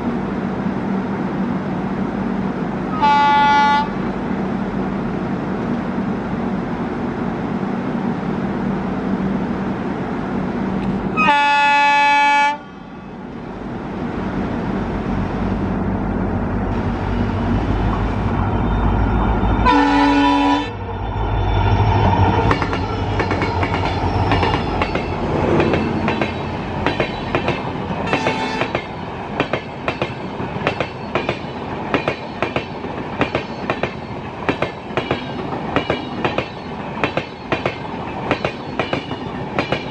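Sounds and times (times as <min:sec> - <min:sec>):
diesel locomotive engine rumble: 0:00.0 - 0:39.9
train horn: 0:02.9 - 0:04.0, 0:11.2 - 0:13.1, 0:19.4 - 0:20.9, 0:28.1 - 0:28.8.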